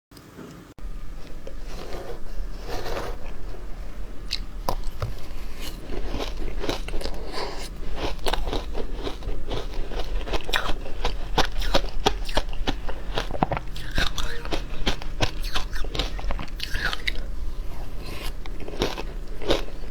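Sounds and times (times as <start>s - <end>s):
ice crunching in mouth: 4.2s - 19.9s.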